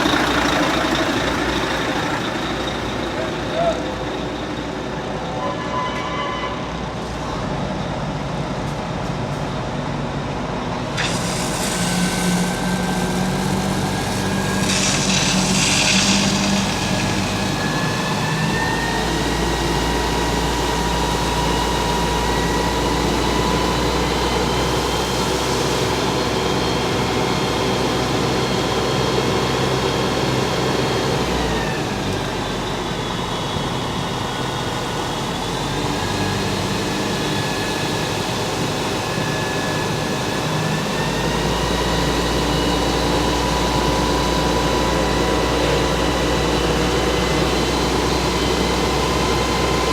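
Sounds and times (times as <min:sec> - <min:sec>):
fire truck engine running: 0:00.0 - 0:05.5, 0:06.7 - 0:49.9
high whine rising in pitch: 0:10.8 - 0:23.8
hissing: 0:11.0 - 0:18.2.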